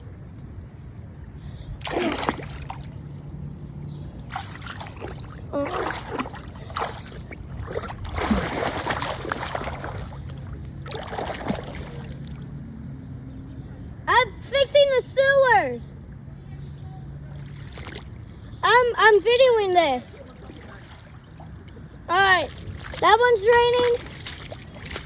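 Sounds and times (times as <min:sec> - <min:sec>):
floodwater splashing and sloshing: 0:01.8 - 0:13.4, 0:17.1 - 0:25.0.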